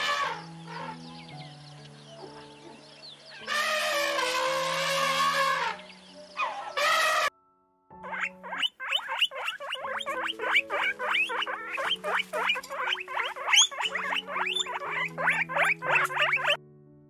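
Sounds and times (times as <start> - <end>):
guinea pig squeaking: 8.0 - 16.6.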